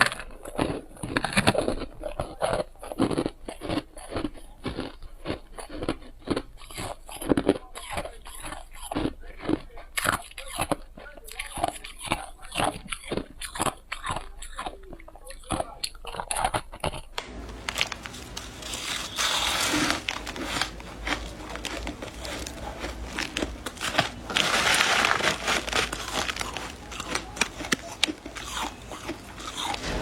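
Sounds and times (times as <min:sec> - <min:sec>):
person crunching ice: 0:17.7 - 0:30.0.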